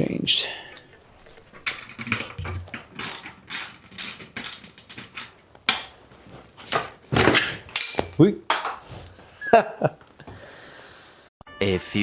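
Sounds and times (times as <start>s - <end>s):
ratchet wrench clicking: 3.0s - 5.4s.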